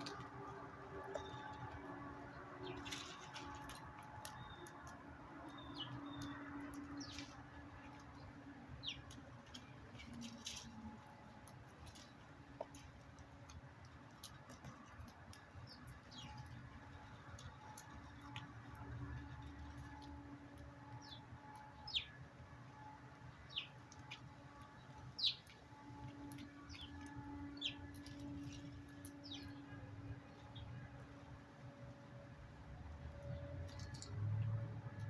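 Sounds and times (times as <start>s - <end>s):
low steady hum: 0.0s - 35.0s
small birds chirping: 1.0s - 10.7s, 15.3s - 18.4s, 20.9s - 22.2s, 23.3s - 30.8s.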